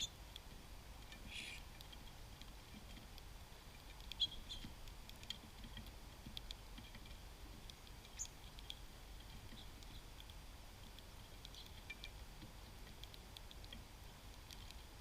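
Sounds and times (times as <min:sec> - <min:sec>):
songbirds chipping: 0:00.0 - 0:15.0.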